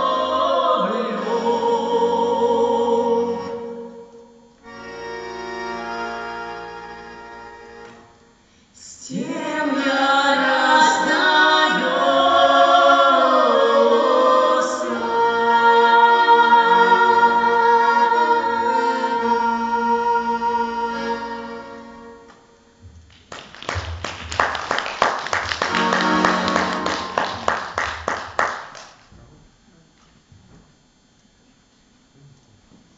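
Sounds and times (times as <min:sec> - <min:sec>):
person singing: 0:00.0 - 0:04.4, 0:08.8 - 0:21.8
musical accompaniment: 0:00.0 - 0:08.4, 0:09.7 - 0:22.8, 0:23.7 - 0:28.5.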